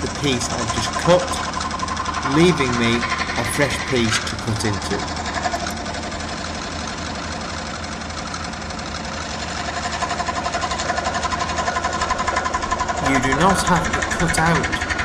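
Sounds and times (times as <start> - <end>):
scroll saw cutting wood: 0.0 - 6.4, 9.3 - 15.0.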